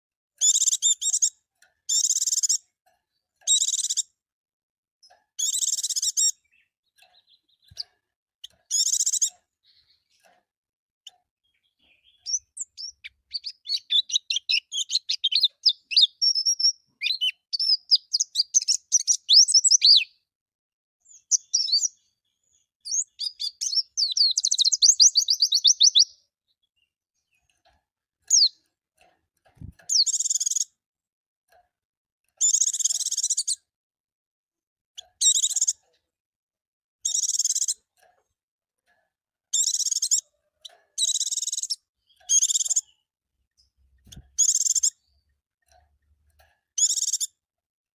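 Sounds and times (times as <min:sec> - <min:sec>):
bird twittering song: 0:00.4 - 0:04.2, 0:05.0 - 0:10.4, 0:11.0 - 0:20.3, 0:21.0 - 0:28.7, 0:29.6 - 0:30.8, 0:32.3 - 0:33.7, 0:35.0 - 0:35.9, 0:37.0 - 0:37.9, 0:39.5 - 0:45.3, 0:46.0 - 0:47.4.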